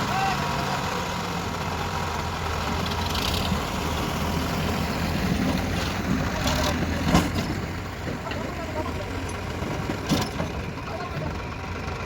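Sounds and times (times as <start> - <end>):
diesel engines idling: 0.0 - 12.0.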